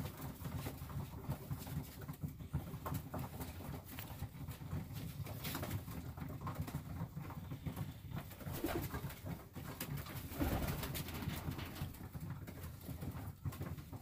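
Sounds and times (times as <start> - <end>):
pigeons cooing: 7.7 - 9.2, 10.2 - 11.9.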